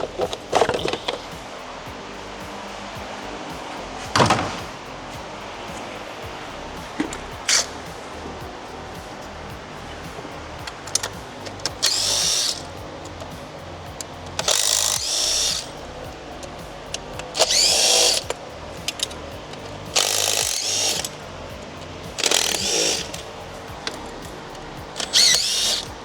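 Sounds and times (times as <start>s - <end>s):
power tool motor whining: 11.8s - 12.7s, 14.4s - 15.9s, 17.4s - 18.3s, 19.9s - 21.2s, 22.1s - 23.3s, 24.0s - 25.9s.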